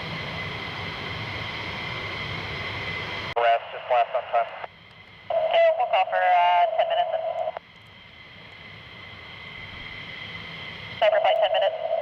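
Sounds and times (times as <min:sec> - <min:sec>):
voice over radio scanner: 0:03.4 - 0:04.7, 0:05.3 - 0:07.6, 0:11.0 - 0:12.0.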